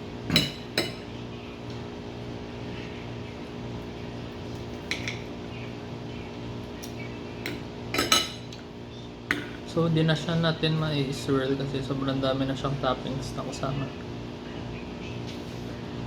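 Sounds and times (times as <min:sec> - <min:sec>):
low background hum: 0:00.0 - 0:16.0
cutlery clinking on plate: 0:07.5 - 0:08.6.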